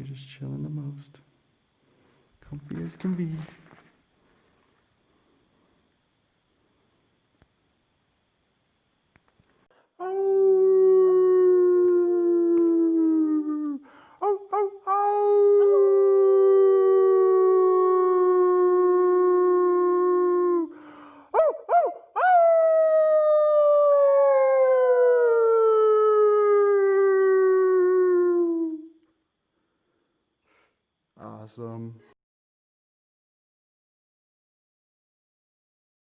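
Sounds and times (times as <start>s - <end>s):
voices howling long notes: 10.0s - 20.8s, 21.4s - 28.9s.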